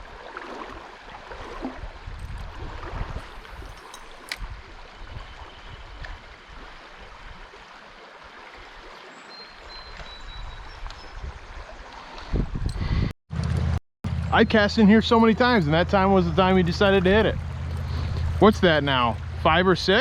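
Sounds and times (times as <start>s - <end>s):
low rumbling: 12.5s - 20.0s.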